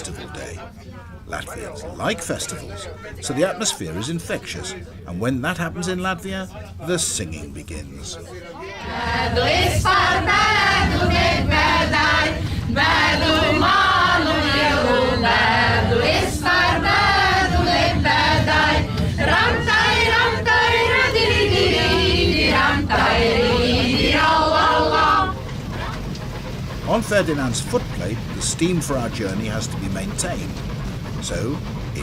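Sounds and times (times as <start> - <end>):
steady low rumble: 0.0 - 32.0
group singing in chorus: 8.5 - 25.6.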